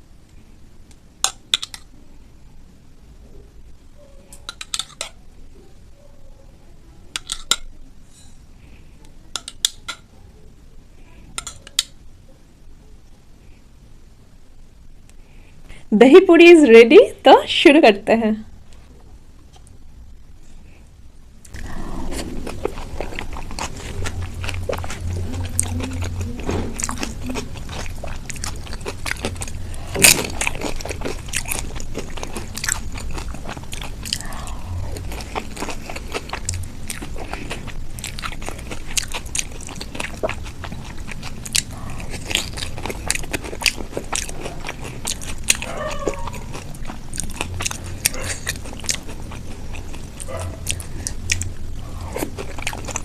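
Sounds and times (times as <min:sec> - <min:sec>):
crisp shells crunching when chewed: 0:21.5 - 0:53.0.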